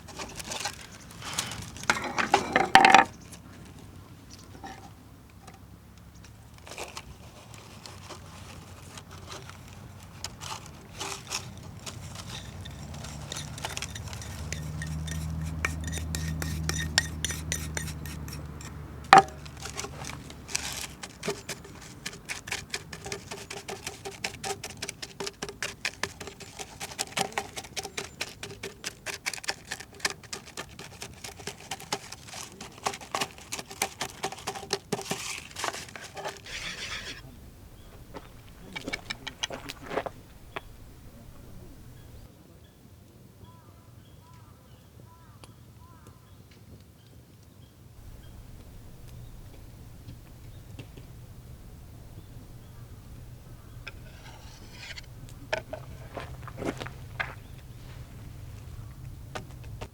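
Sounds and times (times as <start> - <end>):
utensils and dishes clinking: 11.8 - 25.5.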